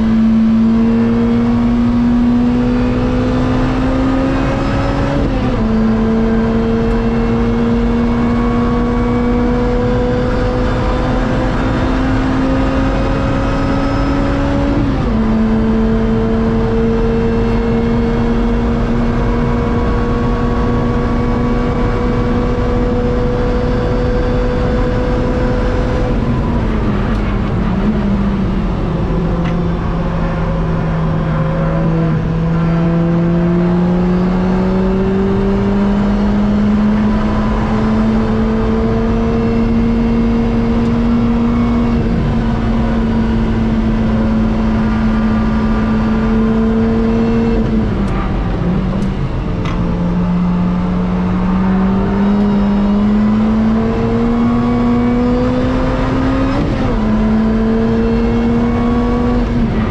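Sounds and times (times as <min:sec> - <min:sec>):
car engine at full throttle: 0:00.0 - 0:59.9
road and wind noise: 0:00.0 - 0:59.9.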